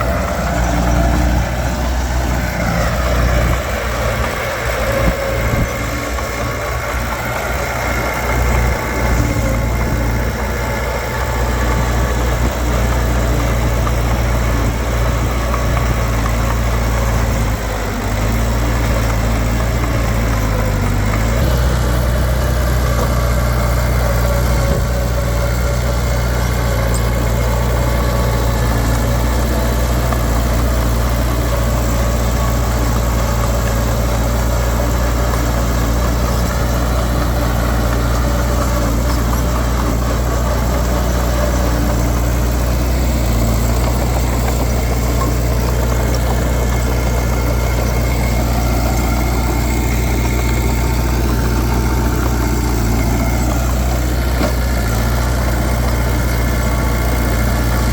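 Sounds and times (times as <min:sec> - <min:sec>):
diesel engine running steadily: 0:00.0 - 0:57.9.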